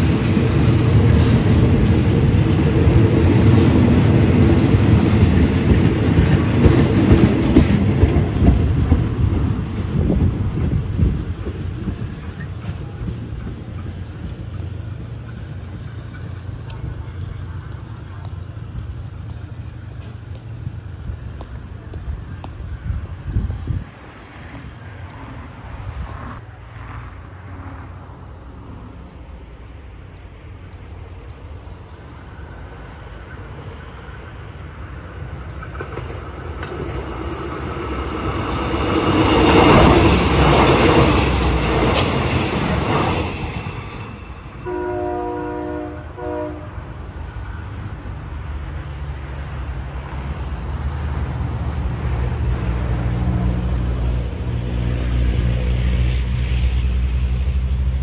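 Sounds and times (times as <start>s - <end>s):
passenger train passing: 0.0s - 58.0s
train horn: 44.1s - 47.0s.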